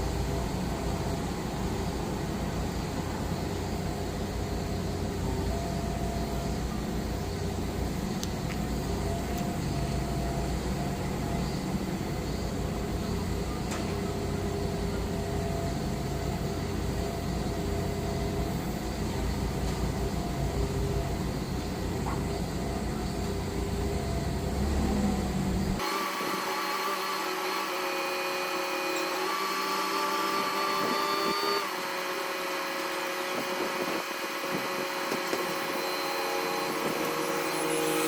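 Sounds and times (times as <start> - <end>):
diesel engine humming: 0.0 - 25.8.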